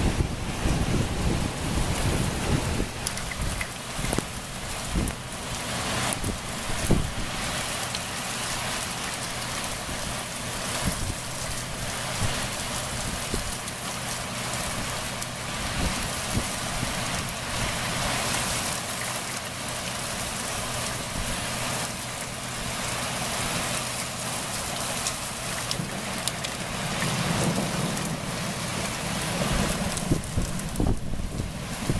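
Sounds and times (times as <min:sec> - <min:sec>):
sharp raindrop impacts: 0:00.0 - 0:31.9
steady rain pouring: 0:00.0 - 0:31.9.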